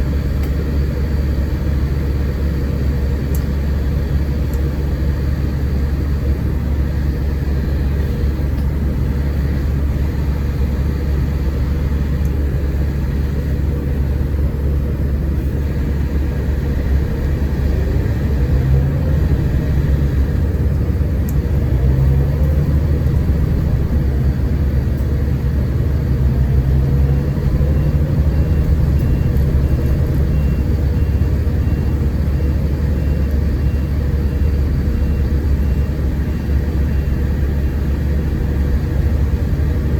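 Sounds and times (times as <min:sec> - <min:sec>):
coach engine and road drone: 0:00.0 - 0:39.9.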